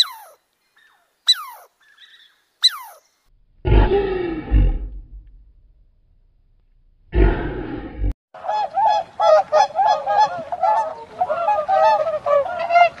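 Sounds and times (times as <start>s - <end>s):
lion roar: 3.6s - 5.4s, 7.1s - 8.1s
waterfowl honking: 8.4s - 13.0s.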